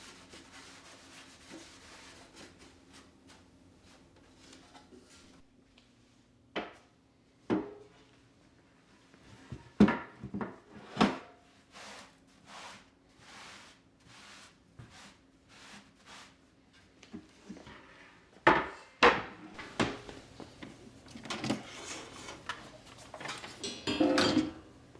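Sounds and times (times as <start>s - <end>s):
objects knocking on wooden surface: 19.6s - 24.6s.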